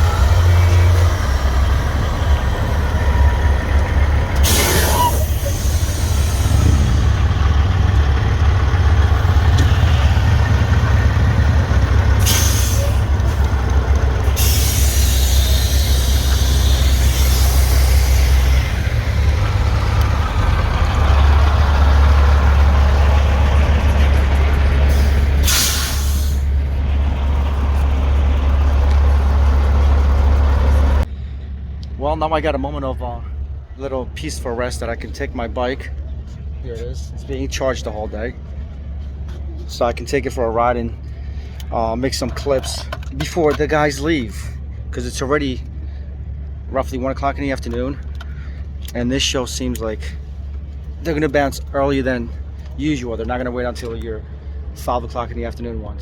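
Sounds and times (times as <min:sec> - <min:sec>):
diesel trucks idling: 0:00.0 - 0:56.0
air-brake hisses: 0:04.3 - 0:07.0, 0:12.2 - 0:13.6, 0:14.2 - 0:18.8, 0:24.9 - 0:26.5.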